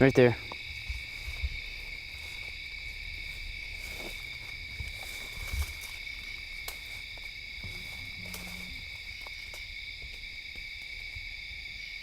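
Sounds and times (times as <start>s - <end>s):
insects chirping: 0.0s - 12.0s
brush snapping and rustling: 3.3s - 11.0s.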